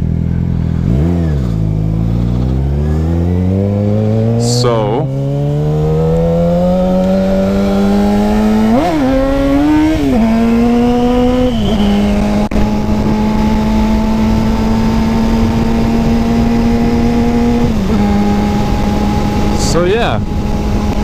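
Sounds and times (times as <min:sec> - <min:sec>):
motorcycle engine revving: 0:00.0 - 0:21.0
wind rush on microphone: 0:05.8 - 0:21.0.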